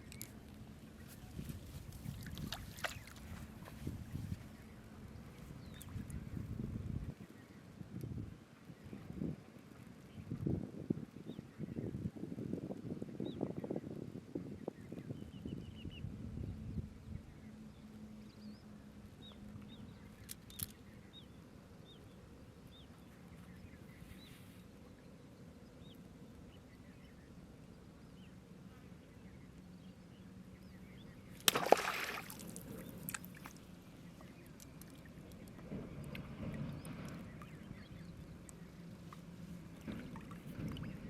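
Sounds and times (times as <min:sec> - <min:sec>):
water sloshing: 0:01.0 - 0:04.6, 0:31.4 - 0:41.0.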